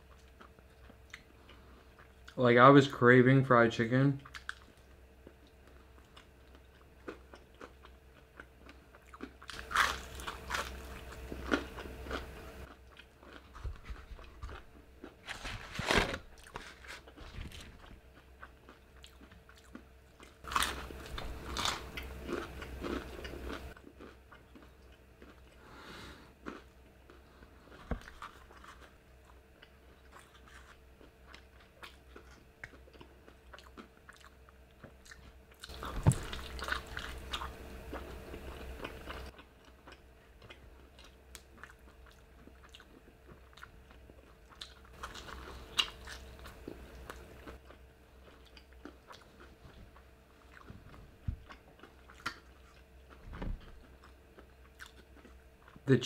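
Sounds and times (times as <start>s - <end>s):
quiet chewing: 0.0s - 2.4s, 4.2s - 15.4s, 16.4s - 55.8s
faint steady hum: 0.0s - 56.0s
crunchy bites of fried chicken: 6.2s - 13.5s, 14.1s - 25.4s.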